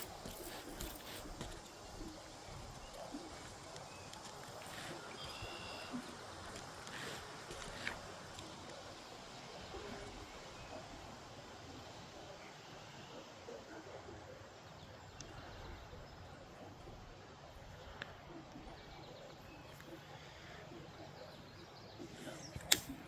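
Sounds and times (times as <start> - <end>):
faint outdoor background noise: 0.0 - 23.0
sharp click: 22.5 - 23.0.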